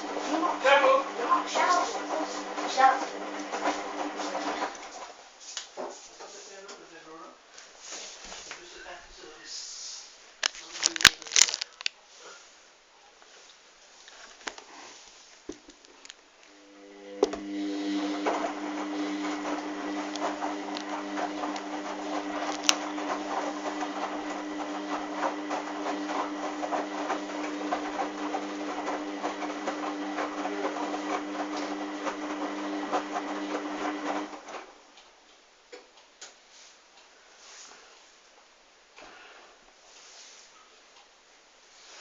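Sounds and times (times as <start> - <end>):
washing machine motor hum: 0.0 - 5.0, 16.6 - 34.7
crackle of water and suds: 10.4 - 12.0.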